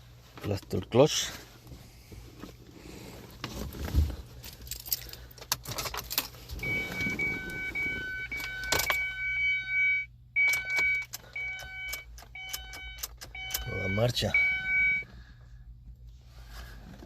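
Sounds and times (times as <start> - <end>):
keys jangling: 4.4 - 6.4
ignition clicks: 4.9 - 9.6, 10.4 - 15.1
dashboard warning chime beeping: 6.5 - 15.1.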